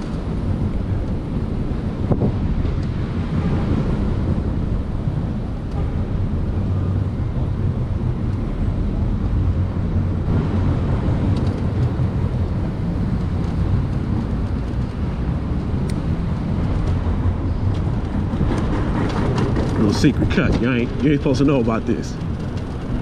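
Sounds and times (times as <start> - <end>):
wind rushing: 0.0 - 21.0
road noise: 0.0 - 23.0.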